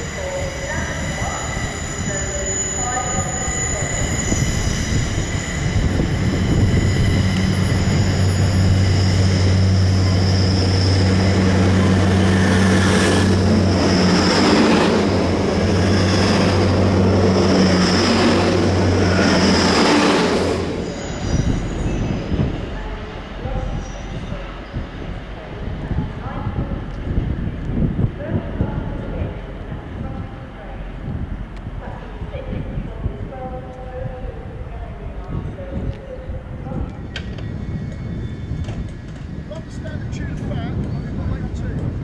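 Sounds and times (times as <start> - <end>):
train wheel squeal: 0.0 - 25.1, 36.6 - 41.8
rushing of train wheels: 0.0 - 42.0
train engine hum: 0.0 - 42.0.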